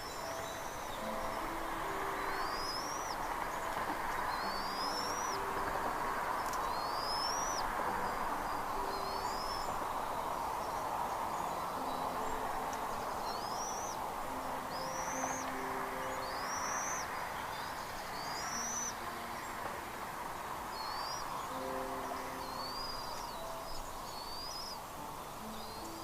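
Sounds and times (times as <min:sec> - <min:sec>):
bird whistled call: 0:00.0 - 0:05.7, 0:06.4 - 0:09.8, 0:13.2 - 0:19.1, 0:20.8 - 0:24.8
steady rushing hiss: 0:00.0 - 0:26.0.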